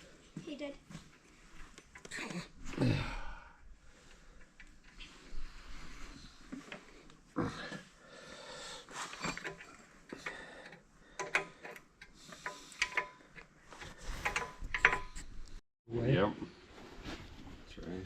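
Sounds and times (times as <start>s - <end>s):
clicks and knocks on heavy metal: 11.2s - 13.4s.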